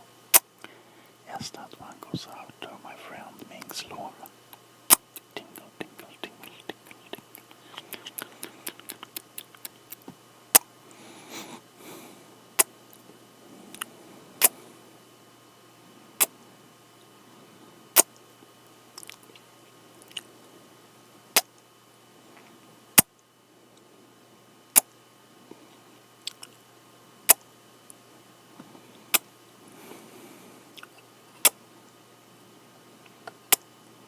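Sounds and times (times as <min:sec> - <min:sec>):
kissing lip smacks: 0:04.9 - 0:10.7, 0:19.0 - 0:19.4
soft mouth clicks: 0:04.9 - 0:10.7, 0:13.7 - 0:14.6, 0:19.0 - 0:19.4, 0:20.0 - 0:20.3, 0:26.2 - 0:26.6, 0:30.7 - 0:31.6.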